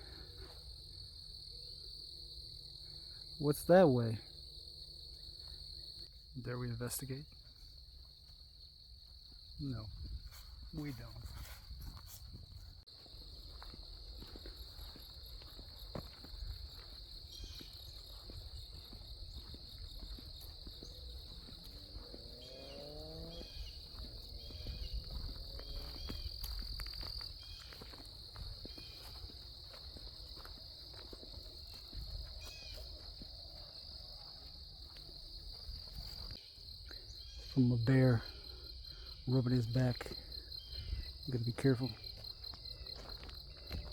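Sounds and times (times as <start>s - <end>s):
insect chorus: 0.0s - 43.9s
footsteps crunching on trail: 7.4s - 43.9s
bird chirps: 17.3s - 18.2s.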